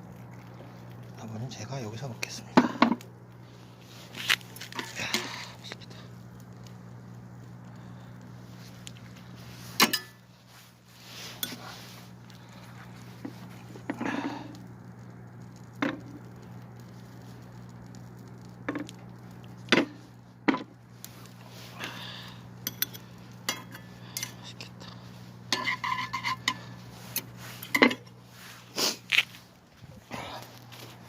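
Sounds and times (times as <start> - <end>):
steady low hum: 0.0 - 31.0
utensils clinking on metal pot: 9.8 - 10.2, 22.6 - 24.6, 25.5 - 26.6.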